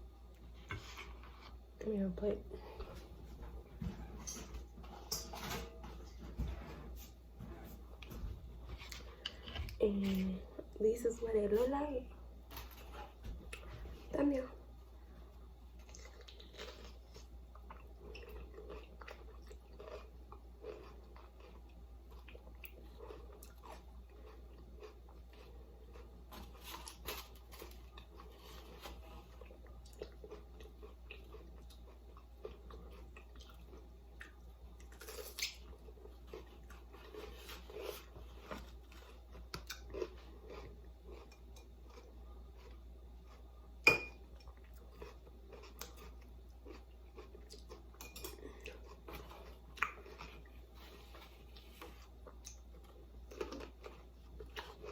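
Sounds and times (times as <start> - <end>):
steady low hum: 0.0 - 54.9
person chewing and crunching: 7.6 - 10.3, 15.7 - 54.9.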